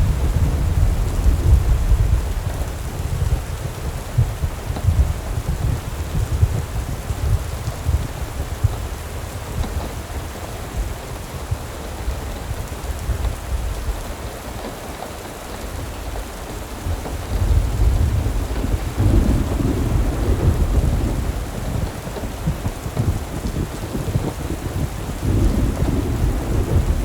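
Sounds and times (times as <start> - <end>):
deep low rumble: 0.0 - 6.6
steady rain: 0.0 - 27.0.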